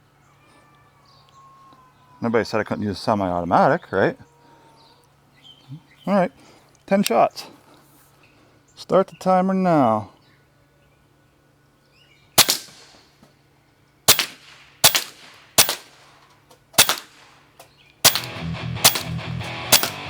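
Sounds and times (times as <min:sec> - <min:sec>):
air rifle shots: 0:12.4 - 0:13.1, 0:14.1 - 0:16.2, 0:16.8 - 0:20.0
electric guitar music: 0:18.2 - 0:20.0.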